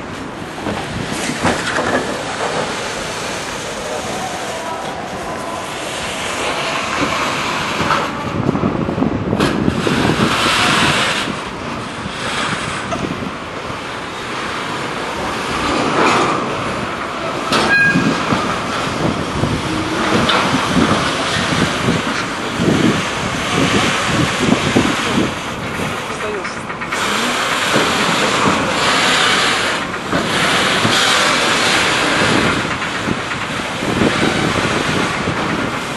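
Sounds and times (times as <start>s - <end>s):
freight train rumbling past: 0.0s - 35.9s.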